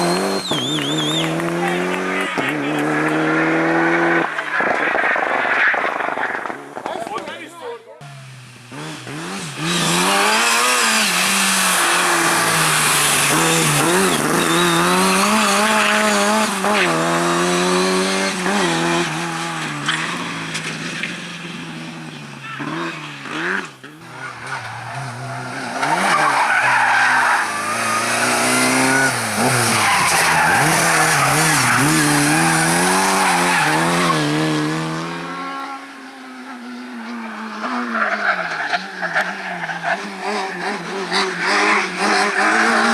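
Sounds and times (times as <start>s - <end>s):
race car engine revving: 0.0s - 7.0s, 8.0s - 42.9s
tyres squealing: 24.5s - 34.2s.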